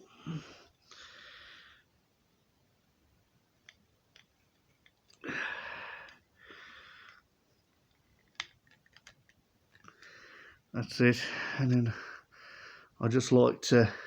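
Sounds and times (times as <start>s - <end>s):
person breathing: 0.0s - 1.9s, 5.2s - 7.3s, 9.8s - 13.0s
plastic parts clicking: 7.0s - 10.0s.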